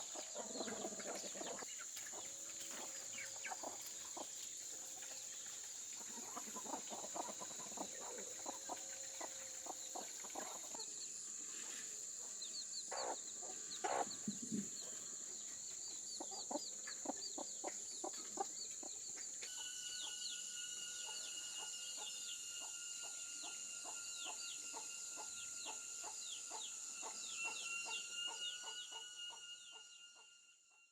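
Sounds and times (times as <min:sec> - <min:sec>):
chickens clucking: 0:00.0 - 0:05.1, 0:06.0 - 0:10.9, 0:12.2 - 0:19.4
chicks peeping: 0:12.5 - 0:14.8.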